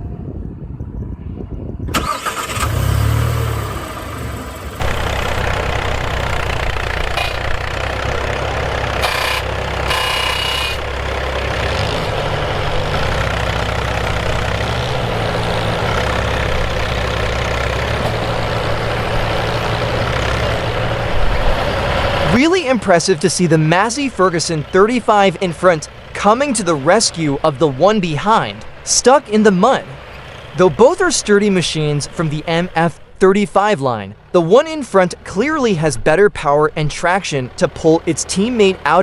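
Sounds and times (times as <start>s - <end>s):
tractor engines running under load: 1.9s - 39.0s
engine revving: 2.0s - 31.6s.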